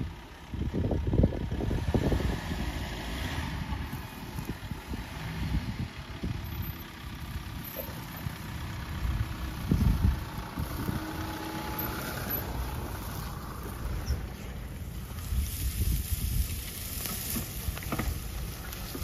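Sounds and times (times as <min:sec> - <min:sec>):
off-road vehicle engine running: 0:00.0 - 0:19.0
vehicle thumps and knocks: 0:17.2 - 0:18.2.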